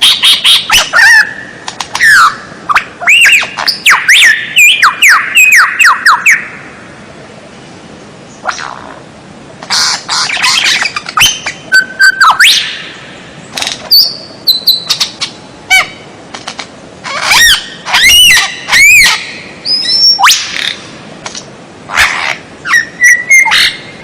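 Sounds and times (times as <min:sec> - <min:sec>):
songbird singing whistles and chatters: 0:00.0 - 0:06.5, 0:09.7 - 0:12.9, 0:13.8 - 0:15.8, 0:17.1 - 0:20.8, 0:22.0 - 0:23.9.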